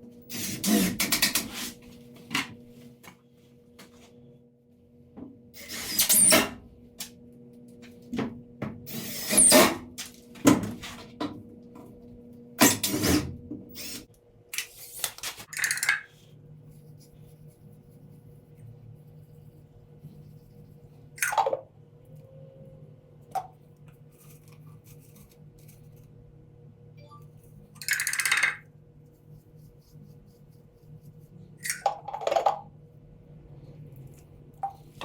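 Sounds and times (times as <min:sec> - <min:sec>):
faint steady hum: 0:15.8 - 0:35.0.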